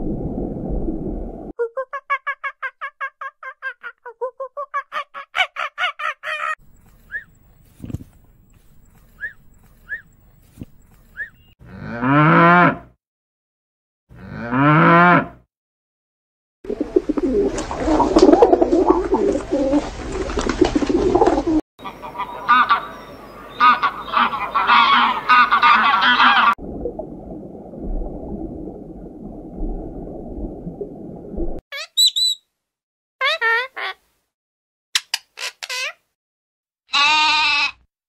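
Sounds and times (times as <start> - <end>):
macaw squawks: 4.8 - 7.3, 31.8 - 32.4, 36.9 - 37.8
geese calling: 21.8 - 26.6, 36.9 - 37.8
overlapping animal calls: 23.6 - 26.6, 36.9 - 37.8.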